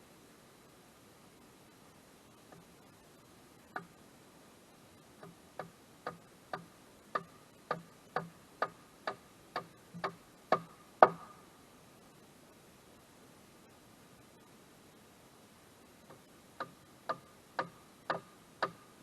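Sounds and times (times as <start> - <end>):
sharp ticks: 3.7 - 4.0, 5.2 - 11.4, 16.1 - 18.9.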